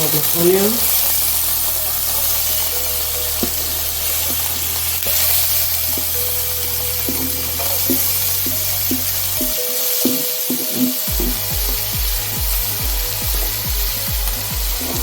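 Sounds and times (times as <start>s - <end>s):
onion sizzling in a pan: 0.0s - 15.0s.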